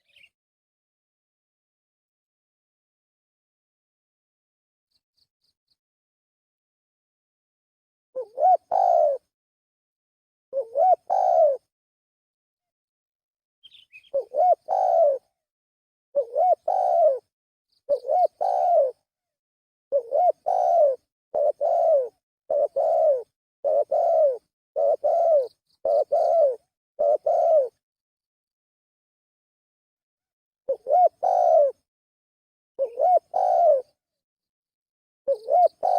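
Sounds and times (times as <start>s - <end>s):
dove cooing: 8.2s - 9.3s, 10.6s - 11.7s, 14.0s - 15.3s, 16.2s - 17.3s, 17.9s - 19.0s, 19.9s - 27.8s, 30.7s - 31.8s, 32.8s - 34.0s, 35.3s - 35.9s.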